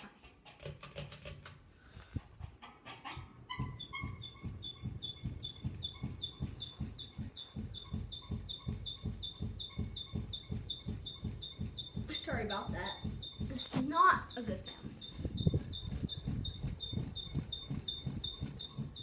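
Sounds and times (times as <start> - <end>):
rhythmic knock and squeak: 0.0 - 19.0
ceiling fan running: 0.6 - 19.0.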